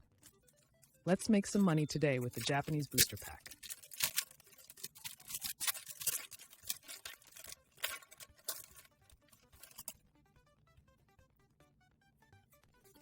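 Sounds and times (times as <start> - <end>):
foil wrapper crinkling and tearing: 1.5 - 10.0.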